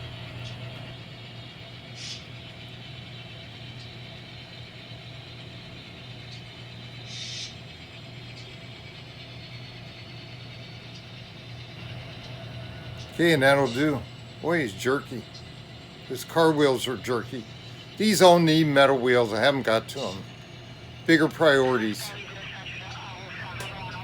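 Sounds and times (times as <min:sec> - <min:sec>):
diesel engine running: 0:00.0 - 0:24.0
short air hisses: 0:07.1 - 0:07.6.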